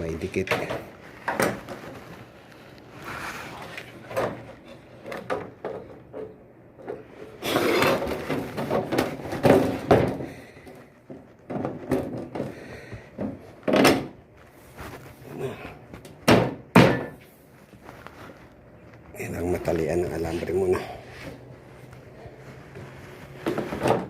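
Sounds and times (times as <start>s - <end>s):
rattling scrapes and thumps: 3.2s - 15.3s.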